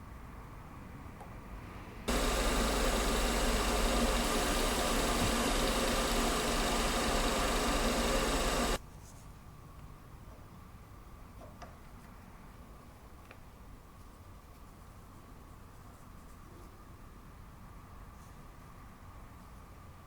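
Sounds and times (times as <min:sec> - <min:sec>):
lathe motor hum and hiss: 0:02.1 - 0:08.8.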